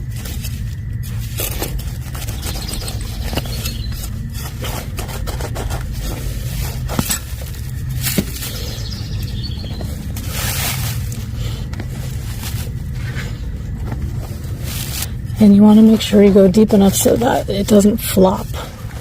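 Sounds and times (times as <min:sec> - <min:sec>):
steady low rumble: 0:00.0 - 0:19.0
shovel scraping into soil: 0:10.2 - 0:13.2.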